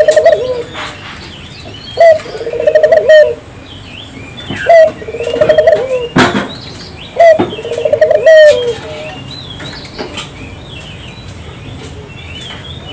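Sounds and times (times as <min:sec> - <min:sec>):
dove cooing: 0:00.0 - 0:01.0, 0:02.0 - 0:03.4, 0:04.5 - 0:06.2, 0:07.2 - 0:09.1
small birds chirping: 0:00.0 - 0:12.9
sharp knock: 0:06.2 - 0:06.6.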